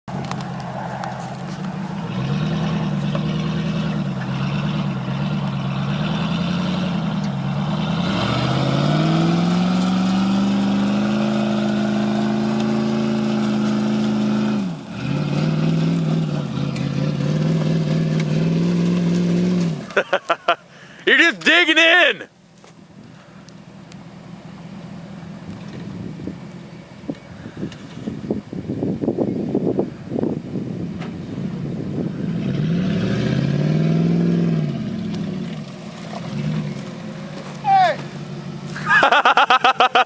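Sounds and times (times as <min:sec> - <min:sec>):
truck engine revving: 0:00.2 - 0:22.2, 0:31.2 - 0:40.0.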